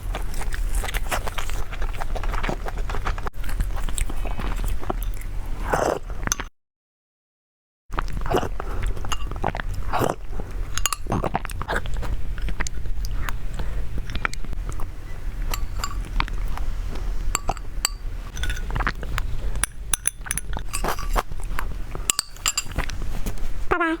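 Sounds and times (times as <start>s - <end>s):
chewing and biting: 0.0s - 6.1s, 8.0s - 23.5s
utensils clinking on dish: 10.7s - 11.2s, 15.5s - 16.1s, 17.4s - 18.9s, 19.6s - 21.4s, 22.0s - 23.0s.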